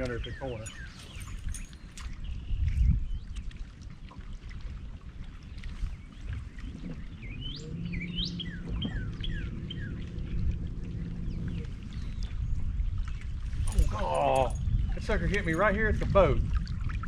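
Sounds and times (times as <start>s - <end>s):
birds chirping: 0.0s - 3.4s, 5.7s - 15.8s
low rumble: 5.3s - 17.0s
steady low hum: 6.8s - 15.2s.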